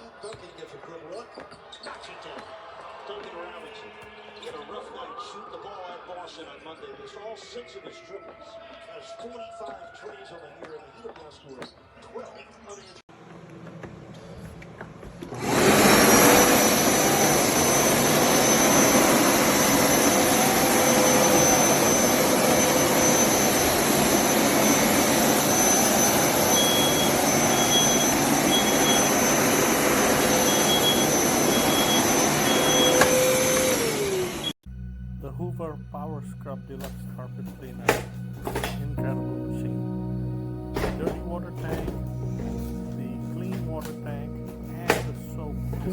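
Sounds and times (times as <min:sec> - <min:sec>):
carpet cleaner motor whining: 0:13.5 - 0:34.6, 0:36.7 - 0:39.4, 0:40.1 - 0:45.9.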